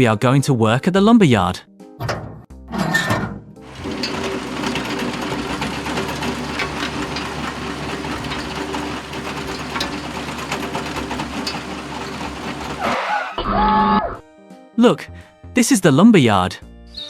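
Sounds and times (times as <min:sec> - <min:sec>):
small motor and gears whirring: 0:03.7 - 0:13.4.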